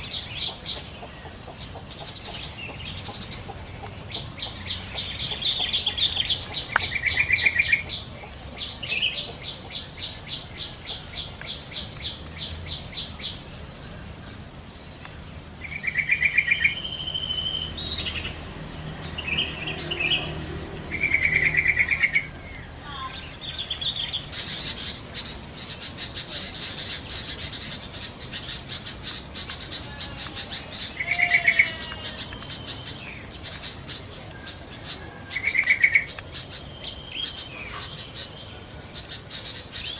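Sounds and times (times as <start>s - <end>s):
bulbuls chattering calls: 0.0s - 39.9s.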